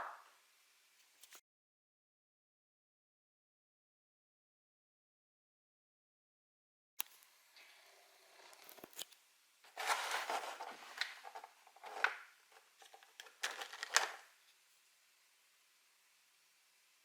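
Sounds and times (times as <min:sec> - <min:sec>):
packaging rustling and crinkling: 0:09.7 - 0:14.3.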